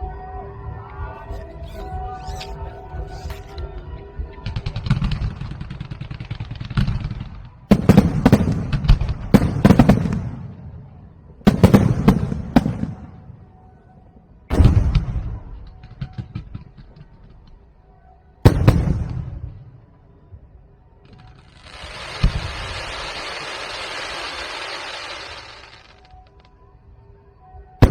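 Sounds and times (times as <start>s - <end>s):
firework crackling: 21.2s - 26.4s
firework shell bursts: 21.5s - 26.4s.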